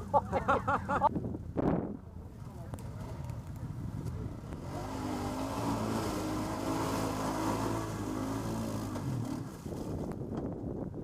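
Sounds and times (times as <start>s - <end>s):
quad bike engine running hard: 2.3s - 10.6s.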